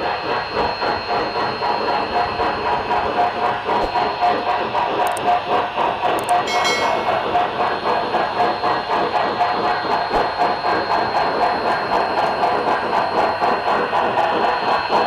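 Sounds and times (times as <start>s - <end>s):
high-pitched ringing tone: 6.2s - 7.5s.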